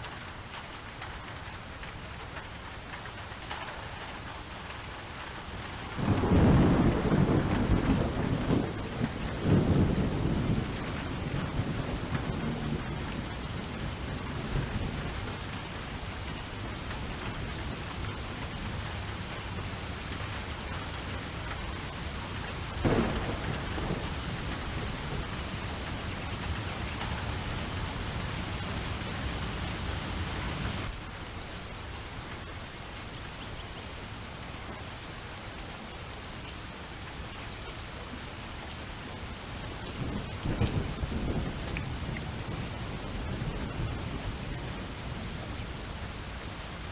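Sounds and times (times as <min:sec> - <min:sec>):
steady rainfall: 0:00.0 - 0:46.9
thunder rumble: 0:06.0 - 0:15.2, 0:17.6 - 0:30.9
sharp thunderclap: 0:22.8 - 0:26.2.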